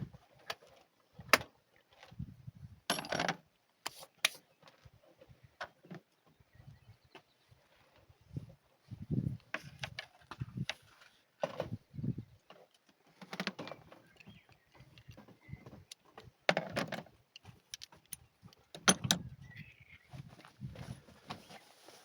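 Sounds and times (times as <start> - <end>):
tools clinking and knocking: 2.9 - 3.4, 15.9 - 19.3.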